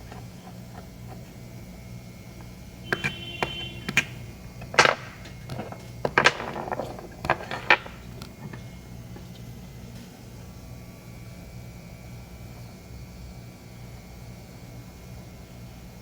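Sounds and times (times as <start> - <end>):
low steady hum: 0.0 - 16.0
small parts and tools clicking: 2.4 - 8.7.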